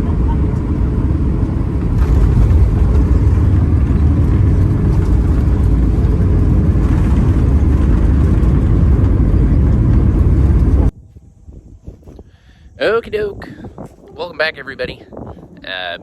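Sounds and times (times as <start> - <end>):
vehicle rumbling: 0.0 - 16.0.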